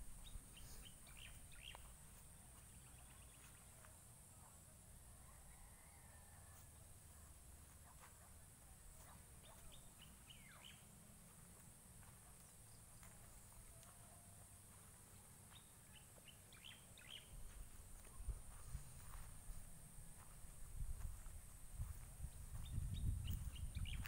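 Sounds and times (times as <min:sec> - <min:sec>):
faint bird chirping: 0:00.0 - 0:24.0.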